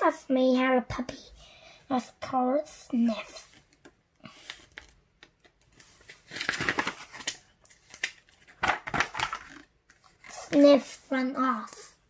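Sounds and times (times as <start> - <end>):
book pages rustling: 3.4 - 11.3.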